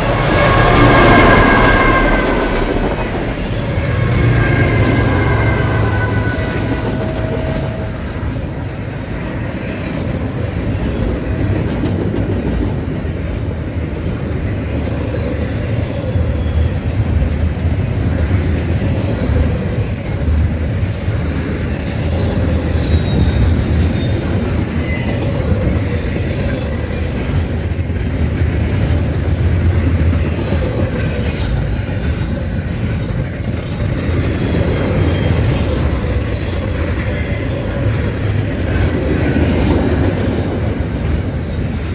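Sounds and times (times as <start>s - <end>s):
faint wheel squeals: 0.0s - 28.9s
train cars rumbling past: 0.0s - 41.9s.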